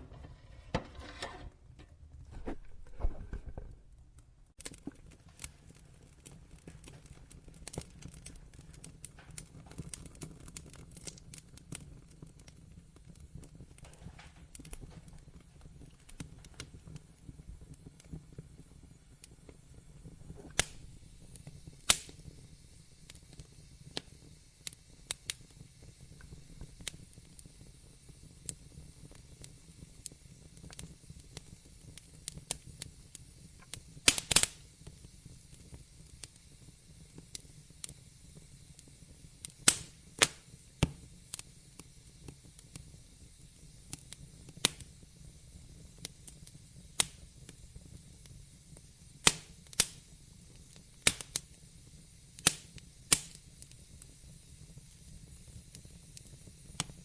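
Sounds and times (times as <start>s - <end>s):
low rumble and hiss: 0.0s - 9.5s
wood fire crackling: 0.0s - 57.0s.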